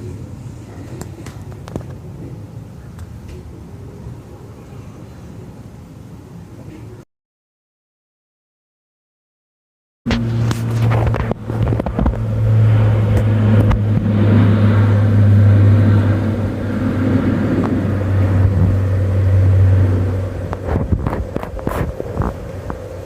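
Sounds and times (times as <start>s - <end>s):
military aircraft flying over: 10.1s - 23.0s.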